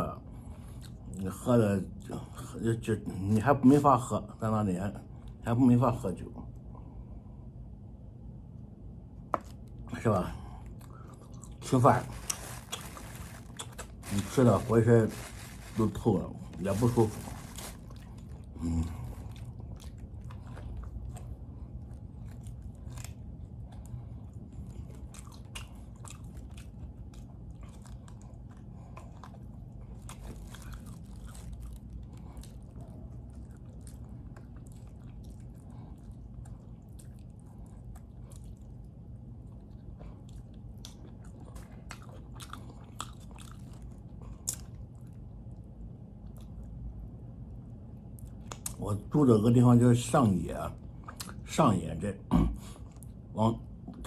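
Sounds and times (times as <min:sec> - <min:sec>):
low hum: 0:06.4 - 0:42.0
man chewing: 0:10.5 - 0:15.8, 0:16.4 - 0:45.6.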